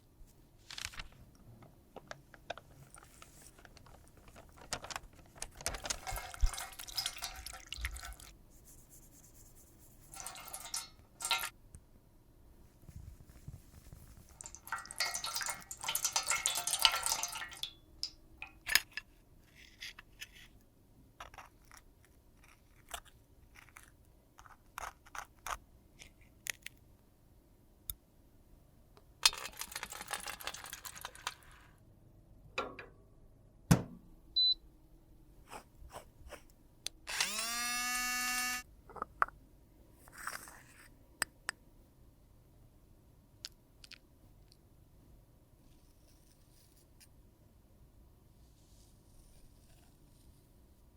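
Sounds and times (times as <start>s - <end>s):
makeup powder scraping: 35.5s - 36.5s, 40.0s - 40.9s
small motor whirring: 37.1s - 38.6s.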